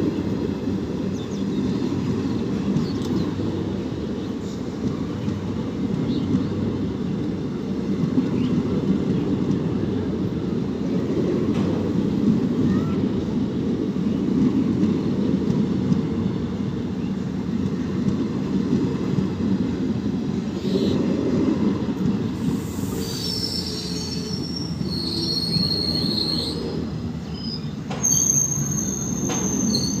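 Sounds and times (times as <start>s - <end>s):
train coaches rumbling on rails: 0.0s - 30.0s
train jolt: 0.0s - 30.0s
wheel squeals: 22.8s - 30.0s.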